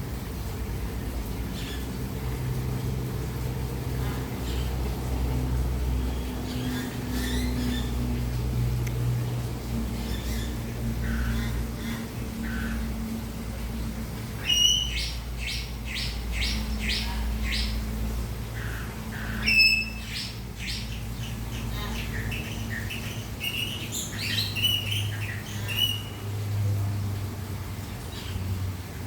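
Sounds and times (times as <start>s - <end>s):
small birds chirping: 4.4s - 9.0s, 14.4s - 18.0s, 18.6s - 26.4s.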